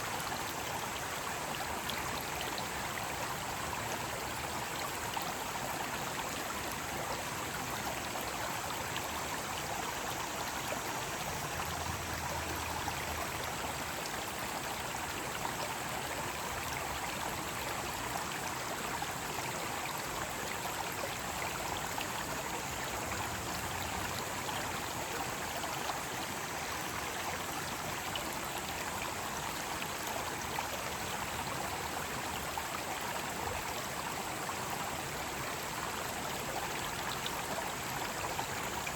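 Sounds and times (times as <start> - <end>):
stream water splashing over rocks: 0.0 - 38.9.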